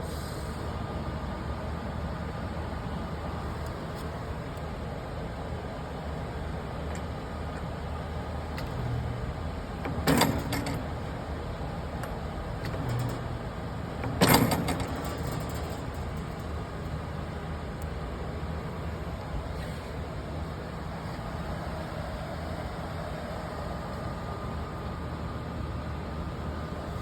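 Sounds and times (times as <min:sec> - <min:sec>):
machine low hum: 0:05.4 - 0:21.7.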